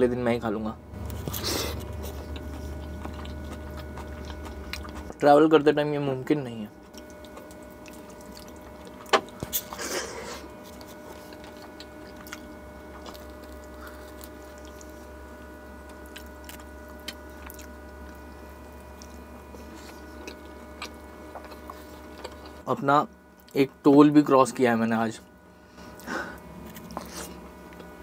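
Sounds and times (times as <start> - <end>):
steady low hum: 0.0 - 28.0
person chewing: 1.0 - 5.2, 6.7 - 22.7, 25.8 - 28.0.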